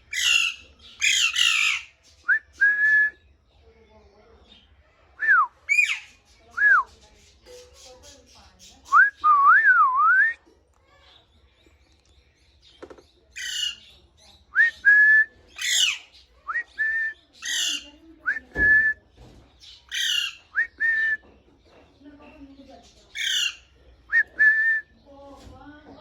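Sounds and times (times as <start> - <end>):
parrot raspy calls: 0.1 - 2.0, 15.6 - 16.2, 19.9 - 20.4, 23.2 - 23.7.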